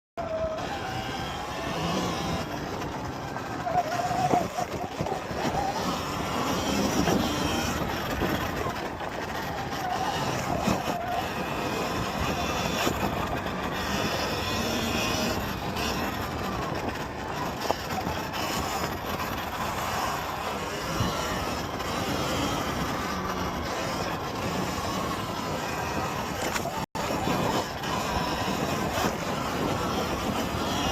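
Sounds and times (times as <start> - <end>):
electric motor whine: 0.2 - 30.9
steady rushing noise: 0.2 - 30.9.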